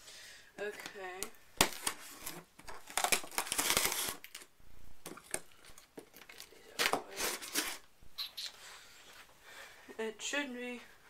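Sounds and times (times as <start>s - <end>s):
cardboard box crinkling and rustling: 1.7s - 4.5s.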